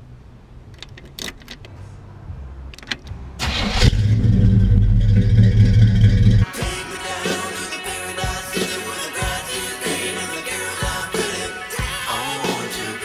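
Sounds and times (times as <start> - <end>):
car engine starting and idling: 0.6 - 6.5
key and ignition clicks: 0.7 - 1.8, 2.7 - 3.2.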